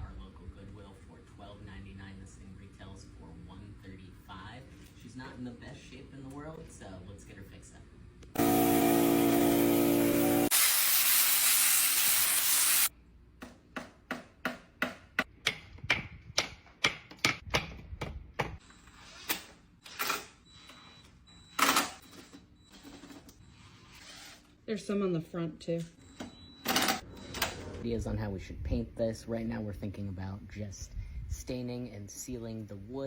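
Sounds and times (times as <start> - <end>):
power tool motor whirring: 8.4 - 10.6
loud hiss: 9.6 - 12.9.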